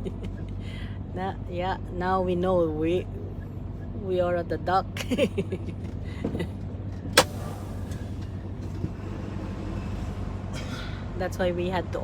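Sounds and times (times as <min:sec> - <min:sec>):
sharp click: 0:07.2 - 0:08.0
diesel engine idling: 0:07.2 - 0:09.8.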